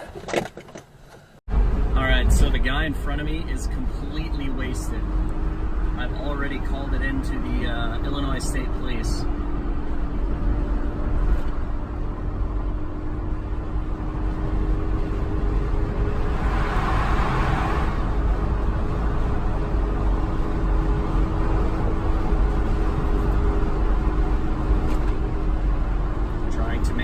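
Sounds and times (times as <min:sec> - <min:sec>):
car road and engine noise: 0:00.0 - 0:27.0
rushing noise: 0:15.3 - 0:18.9.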